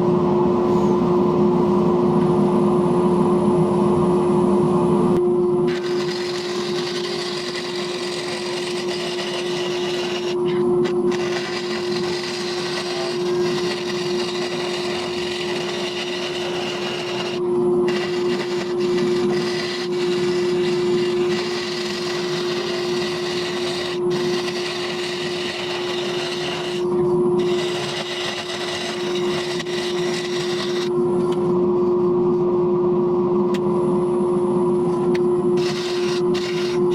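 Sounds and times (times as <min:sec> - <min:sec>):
tool scraping spinning wood: 0:05.7 - 0:31.0, 0:35.6 - 0:36.9
lathe motor hum: 0:05.7 - 0:31.2, 0:35.5 - 0:36.9.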